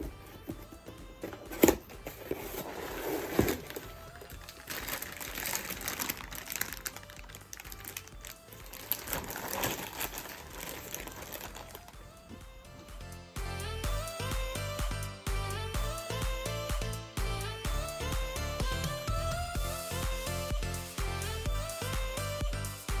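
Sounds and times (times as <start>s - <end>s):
background music: 0.0s - 23.0s
packaging crinkling and rustling: 1.2s - 12.0s.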